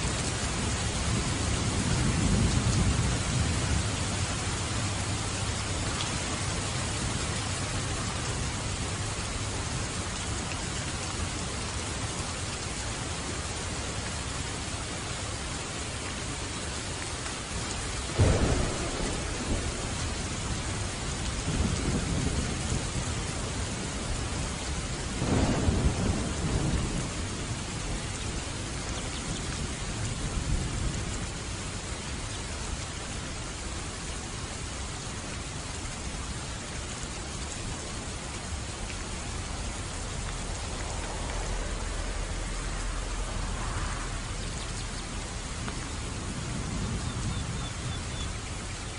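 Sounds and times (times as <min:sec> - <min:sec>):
heavy rain: 0:00.0 - 0:48.9
rolling thunder: 0:00.5 - 0:09.0, 0:18.1 - 0:31.4, 0:38.5 - 0:48.4
thunder crack: 0:18.2 - 0:22.4, 0:40.1 - 0:44.7.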